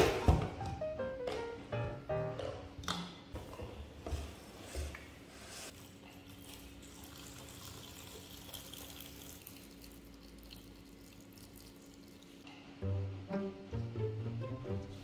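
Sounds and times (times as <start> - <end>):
background music: 0.0 - 2.9, 12.8 - 15.0
water running from a tap: 6.5 - 12.4.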